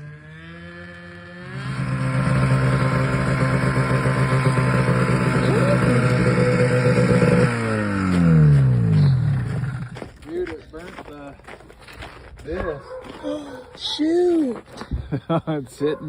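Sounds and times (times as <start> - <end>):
snowmobile engine revving: 0.0 - 10.1.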